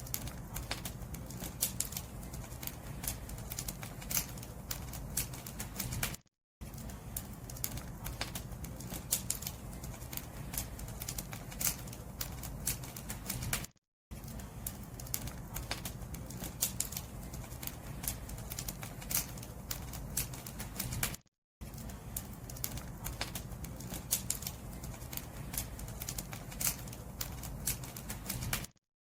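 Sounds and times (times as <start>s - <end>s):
fire crackling and popping: 0.0s - 28.8s
low rumble of flames: 0.0s - 28.8s.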